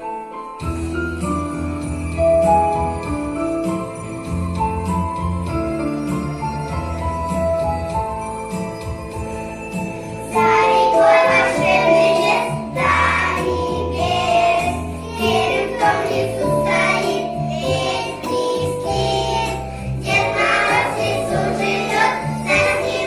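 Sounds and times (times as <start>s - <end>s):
instrumental backing track: 0.0s - 23.0s
children singing: 10.3s - 23.0s.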